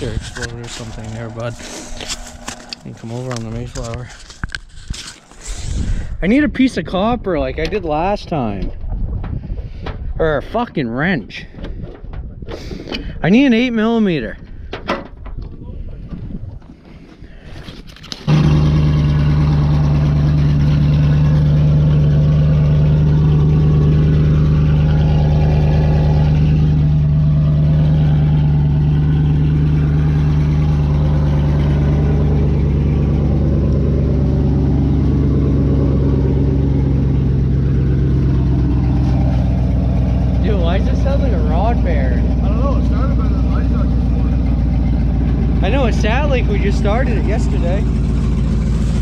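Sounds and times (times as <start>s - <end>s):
truck engine idling loudly: 0.0s - 4.4s, 18.3s - 49.0s
truck engine cranking: 0.0s - 6.1s, 17.8s - 49.0s.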